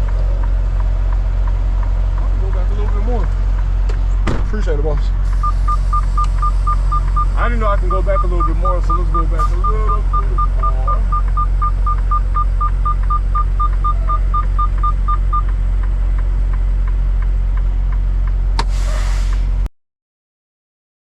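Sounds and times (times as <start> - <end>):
truck engine idling: 0.0 - 19.7
rapid warning beeps: 5.4 - 15.5
brief burst of noise: 18.6 - 19.7.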